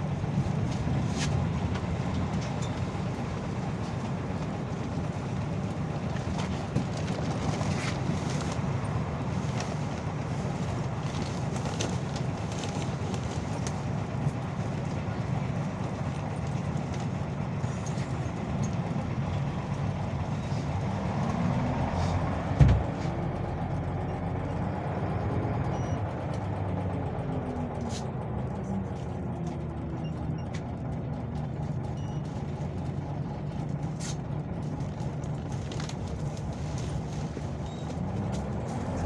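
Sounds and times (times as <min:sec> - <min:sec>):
bus engine drone: 0:00.0 - 0:39.0
road noise: 0:00.0 - 0:39.0
sharp thump: 0:22.6 - 0:23.1.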